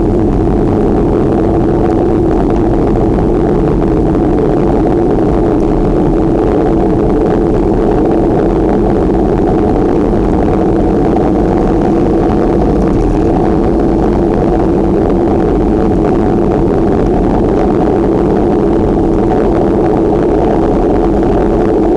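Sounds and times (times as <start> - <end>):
road noise: 0.0 - 21.9
wind on microphone: 0.0 - 21.9.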